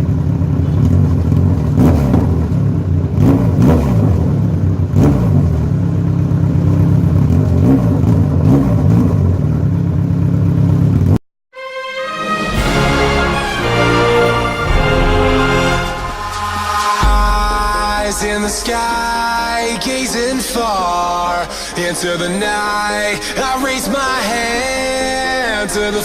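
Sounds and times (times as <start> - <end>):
motorcycle engine idling and revving: 0.0 - 11.2.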